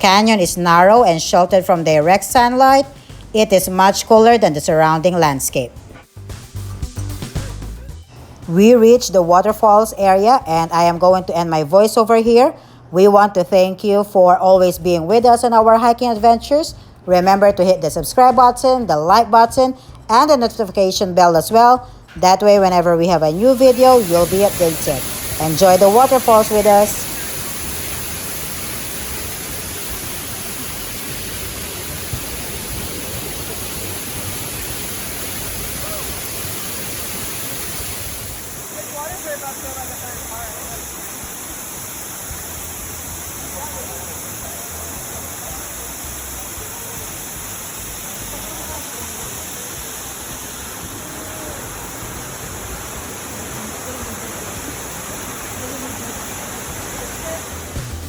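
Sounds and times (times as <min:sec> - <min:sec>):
waterfall hiss: 0:00.0 - 0:05.3, 0:23.3 - 0:58.0.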